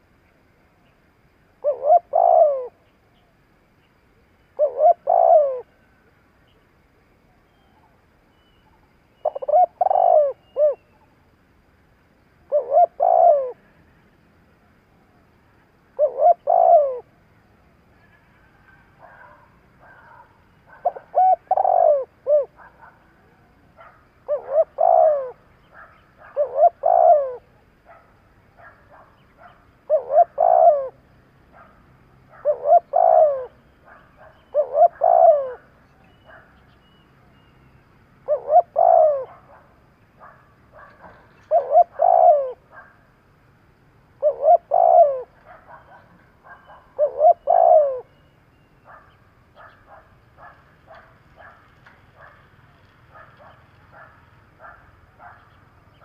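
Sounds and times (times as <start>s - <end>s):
dove cooing: 1.6s - 2.9s, 4.6s - 6.0s, 9.2s - 11.0s, 12.4s - 13.9s, 15.9s - 17.2s, 18.0s - 36.6s, 38.2s - 43.0s, 44.2s - 48.2s, 48.8s - 56.0s.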